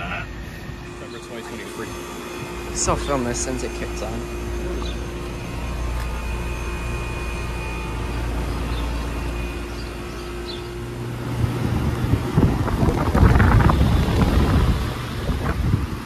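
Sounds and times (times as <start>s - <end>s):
faint whine: 0.0s - 16.0s
heat pump humming: 0.0s - 16.0s
wind on microphone: 11.3s - 16.0s.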